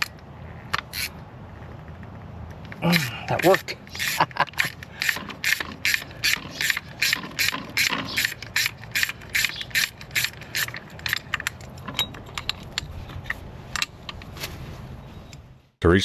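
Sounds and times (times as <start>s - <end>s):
ratchet wrench clicking: 3.4s - 12.9s.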